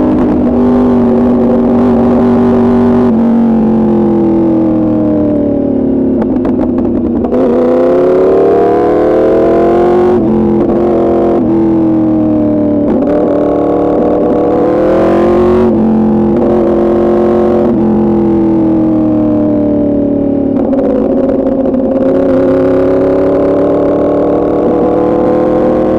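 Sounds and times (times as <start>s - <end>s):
motorcycle engine revving: 0.0s - 25.9s
exhaust crackling pops: 6.1s - 7.6s.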